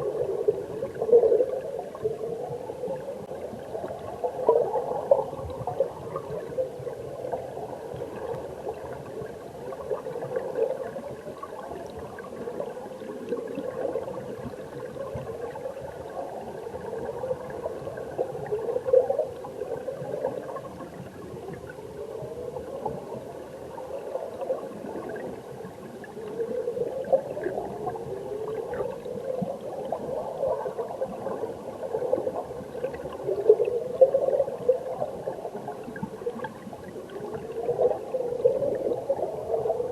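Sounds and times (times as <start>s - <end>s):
underwater stream bubbling: 0.0s - 39.9s.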